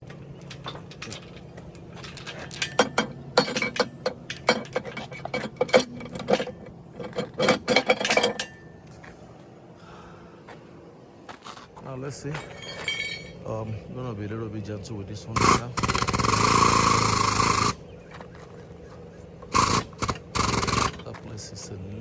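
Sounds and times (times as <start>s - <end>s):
metal tools clanking: 0.0s - 9.0s, 12.2s - 13.9s, 15.2s - 21.7s.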